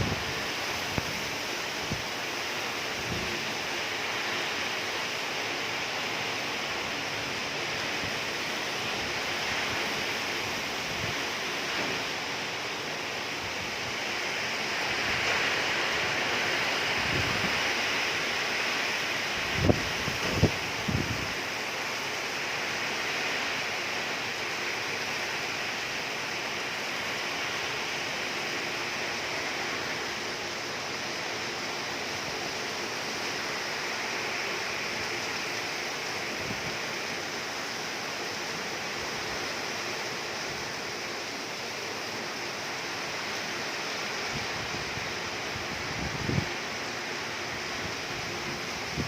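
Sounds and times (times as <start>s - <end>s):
heavy rain falling: 0.0s - 49.0s.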